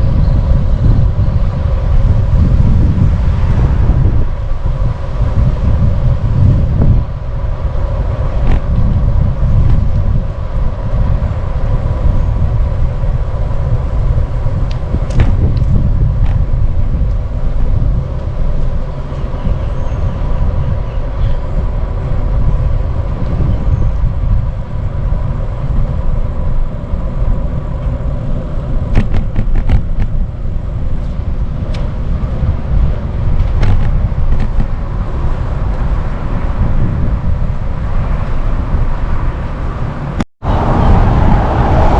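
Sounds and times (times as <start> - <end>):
car traffic passing: 0.0 - 41.9
wind rumbling on microphone: 0.0 - 41.9.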